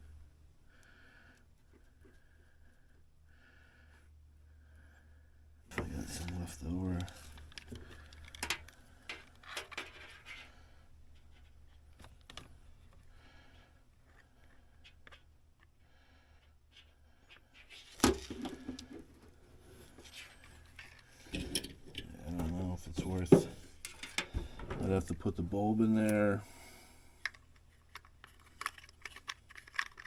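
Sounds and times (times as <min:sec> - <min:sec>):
faint clicks and rubs of tools: 0:05.7 - 0:18.0, 0:18.6 - 0:25.0, 0:25.9 - 0:30.0.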